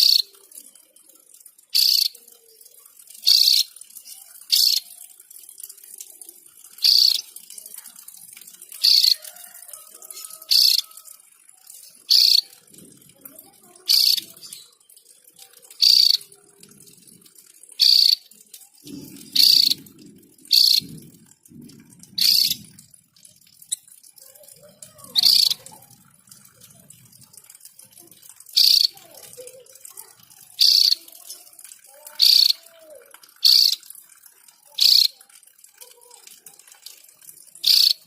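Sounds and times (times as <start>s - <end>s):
bird calling: 19.4s - 19.8s, 20.5s - 20.9s, 22.2s - 22.6s.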